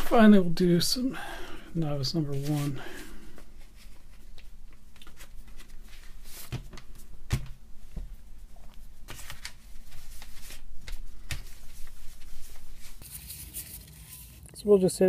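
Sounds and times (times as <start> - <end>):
cloth rubbing plastic: 3.4 - 14.6.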